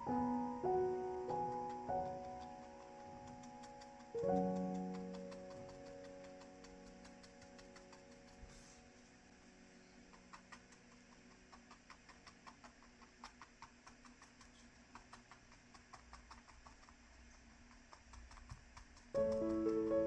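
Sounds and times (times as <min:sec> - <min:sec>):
paintbrush tapping on canvas: 0:01.3 - 0:08.8, 0:17.7 - 0:20.0.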